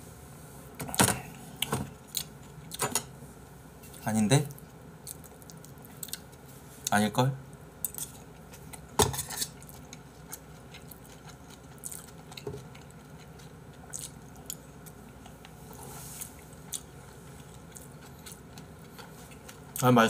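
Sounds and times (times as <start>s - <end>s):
person chewing food: 4.6s - 6.4s, 7.8s - 19.8s.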